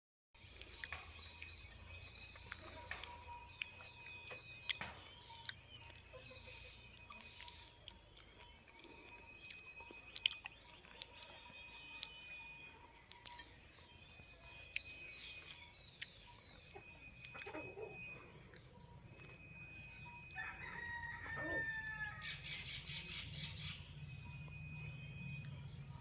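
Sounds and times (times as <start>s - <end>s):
bird calls: 0.4s - 26.0s
bird chirps: 0.4s - 26.0s
faint steady high tone: 0.4s - 26.0s
bird crowing call: 20.2s - 23.9s.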